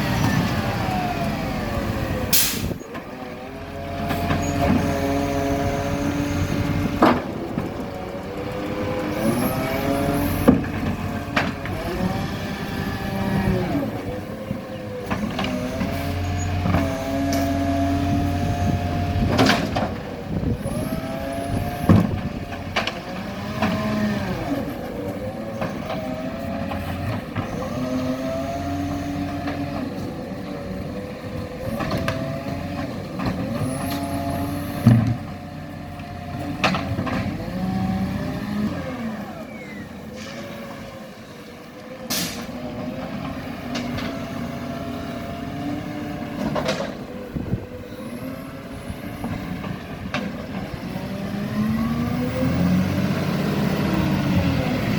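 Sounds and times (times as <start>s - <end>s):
garbage truck engine revving: 0.0s - 54.9s
air hiss: 2.4s - 2.7s.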